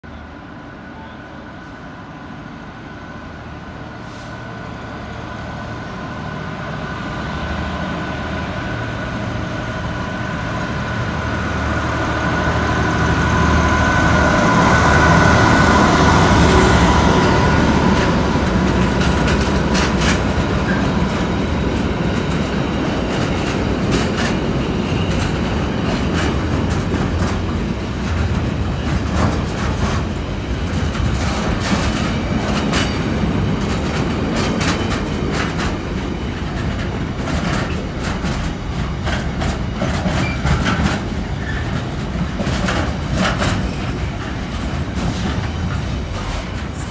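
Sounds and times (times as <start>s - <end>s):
locomotive whine and rumble: 0.0s - 46.9s
freight wagons rumbling past: 5.7s - 46.9s
wheels clicking over rail joints: 16.1s - 46.9s.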